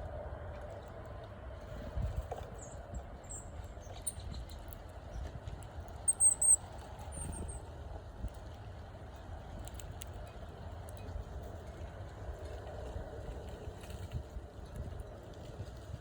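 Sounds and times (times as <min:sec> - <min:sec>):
small birds chirping: 0:02.4 - 0:05.3, 0:06.0 - 0:07.6.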